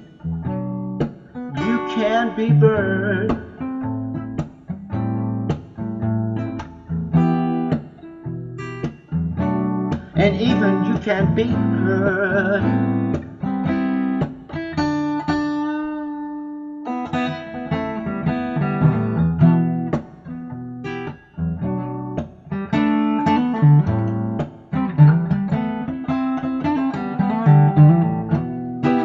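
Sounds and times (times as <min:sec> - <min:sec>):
acoustic guitar picking: 0:00.0 - 0:29.0.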